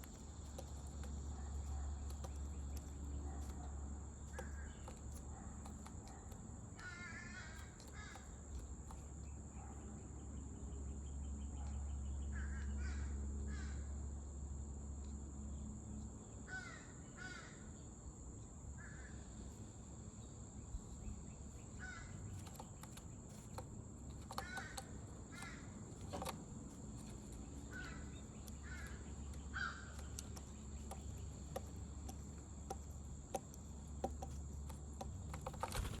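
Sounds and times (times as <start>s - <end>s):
crows cawing: 6.8s - 8.3s, 12.4s - 13.9s, 16.5s - 17.7s, 21.8s - 22.2s, 24.3s - 25.8s, 27.7s - 30.0s.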